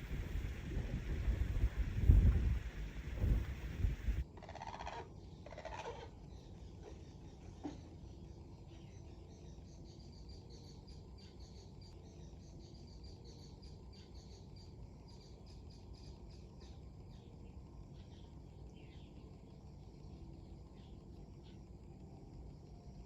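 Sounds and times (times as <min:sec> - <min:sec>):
wind rumble: 0:00.0 - 0:04.2
small birds chirping: 0:06.2 - 0:22.0.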